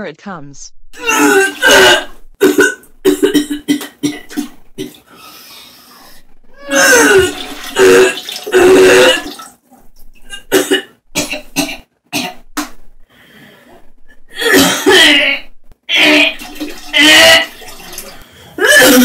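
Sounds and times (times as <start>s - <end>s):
person coughing: 1.0s - 5.0s, 10.3s - 12.4s, 14.4s - 16.3s
person vomiting: 1.0s - 5.0s, 6.5s - 9.4s, 14.3s - 17.7s, 18.6s - 19.0s.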